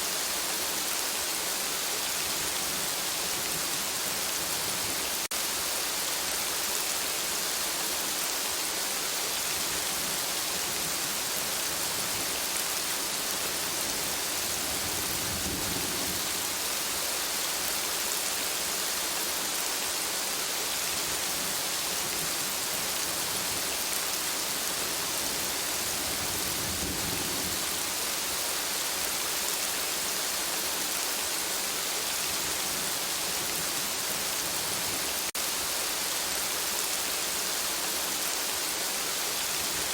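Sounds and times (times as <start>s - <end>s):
steady rain hiss: 0.0s - 39.9s
distant thunder rumbles: 14.4s - 16.6s.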